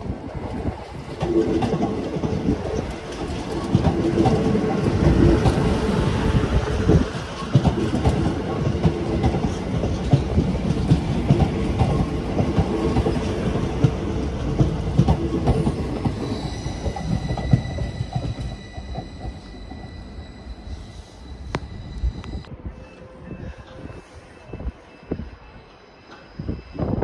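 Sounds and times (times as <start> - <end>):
train rumbling: 0.0 - 27.0
high wheel squeal: 15.8 - 27.0.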